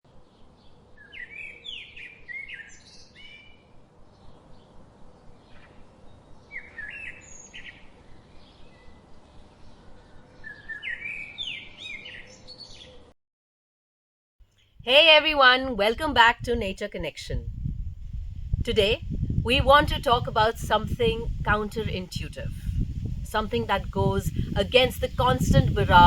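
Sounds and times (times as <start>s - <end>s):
faint forest background: 0.1s - 13.2s, 14.4s - 26.0s.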